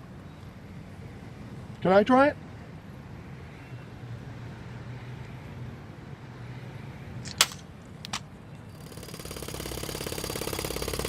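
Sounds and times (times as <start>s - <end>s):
sharp clicks: 7.2s - 8.3s
jackhammer hammering: 8.7s - 11.0s.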